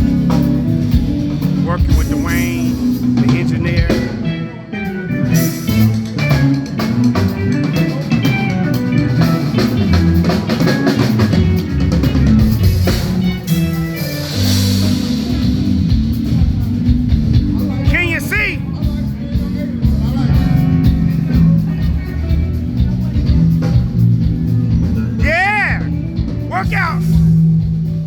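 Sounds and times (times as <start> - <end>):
drum kit: 0.0 - 4.4, 5.1 - 28.0
bass notes: 0.0 - 4.5, 14.5 - 28.0
guitar: 0.0 - 28.0
live band playing: 0.0 - 28.0.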